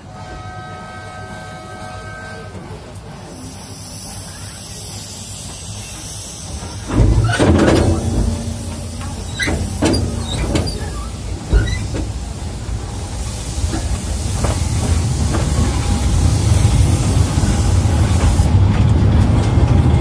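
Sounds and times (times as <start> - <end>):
train rumbling: 0.0 - 20.0
loud clanks and knocks: 6.8 - 12.3.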